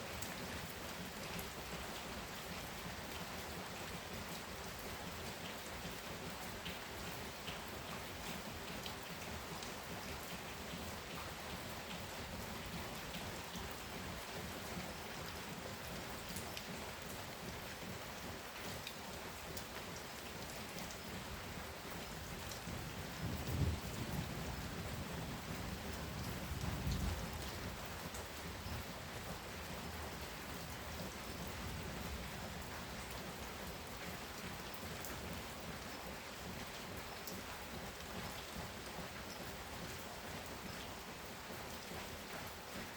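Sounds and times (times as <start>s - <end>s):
steady rain: 0.0s - 42.9s
raindrops ticking: 16.2s - 21.2s.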